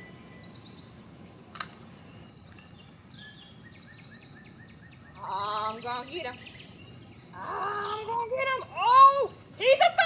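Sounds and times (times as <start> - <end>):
background hiss: 0.0 - 10.0
sharp click: 1.5 - 1.8.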